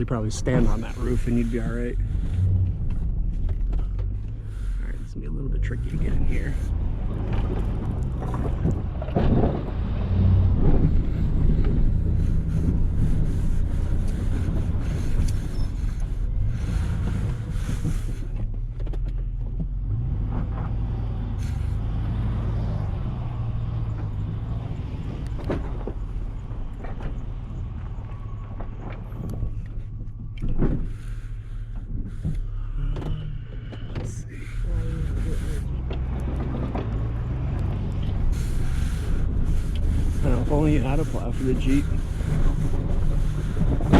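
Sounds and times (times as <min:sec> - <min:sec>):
vehicle engine running at low revs: 0:00.0 - 0:43.9.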